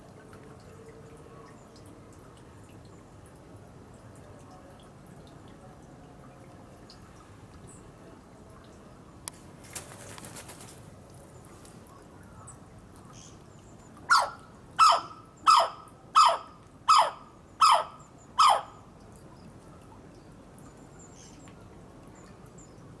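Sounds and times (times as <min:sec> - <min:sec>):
kookaburra calling: 0:14.1 - 0:18.8.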